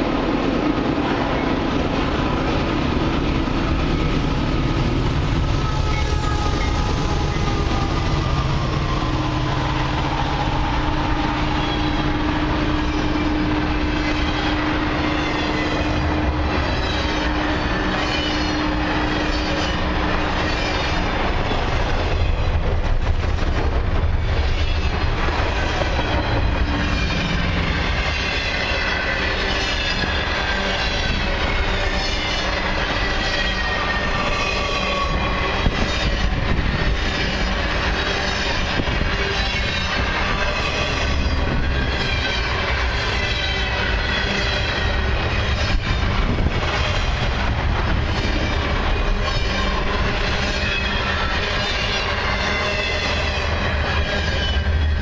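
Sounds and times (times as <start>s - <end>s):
freight train rumbling past: 0.0s - 55.0s
wheels squealing on rails: 3.1s - 55.0s.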